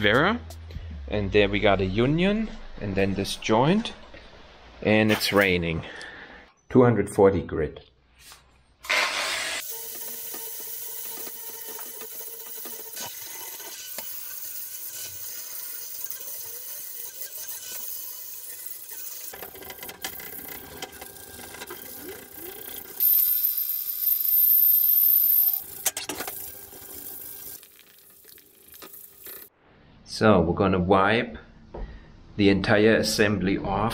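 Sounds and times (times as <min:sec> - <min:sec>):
power tool whining: 0:08.8 - 0:24.4.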